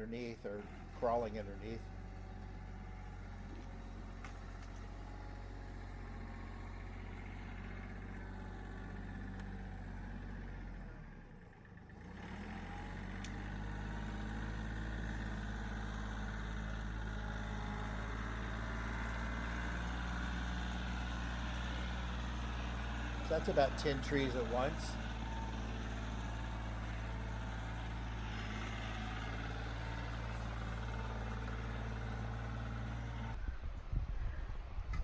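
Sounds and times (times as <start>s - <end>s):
tractor diesel engine running: 0.0s - 33.4s.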